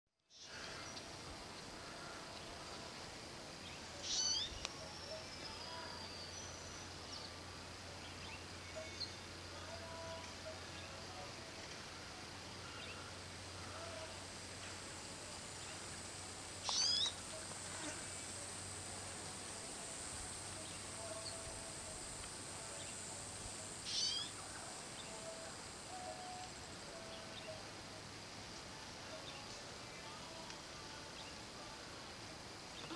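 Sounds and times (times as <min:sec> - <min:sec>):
high insect buzz: 0:00.4 - 0:32.9
faint bird chirps: 0:03.6 - 0:11.1, 0:16.6 - 0:18.2, 0:23.8 - 0:27.7
loud zigzagging bird calls: 0:16.6 - 0:17.2, 0:23.9 - 0:24.3.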